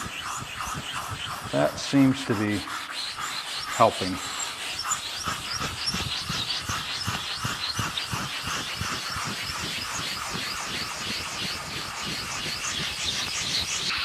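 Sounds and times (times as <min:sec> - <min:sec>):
scrubber rubbing on stone: 0:00.0 - 0:14.0.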